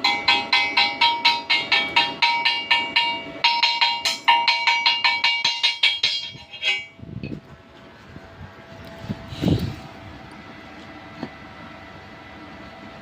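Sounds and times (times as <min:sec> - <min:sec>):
hammer striking steel pipe: 0:00.0 - 0:07.0.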